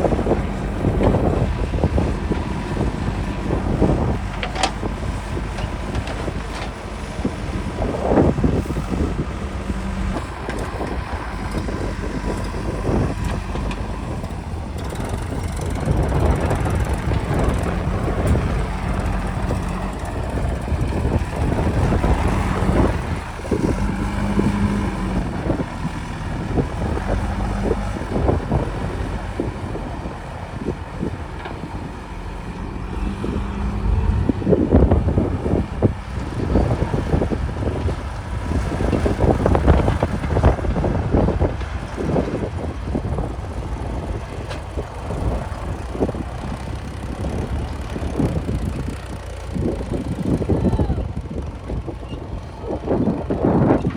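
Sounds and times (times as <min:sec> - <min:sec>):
diesel engine running under load: 0:00.0 - 0:53.9
wind buffeting microphone: 0:00.0 - 0:53.9.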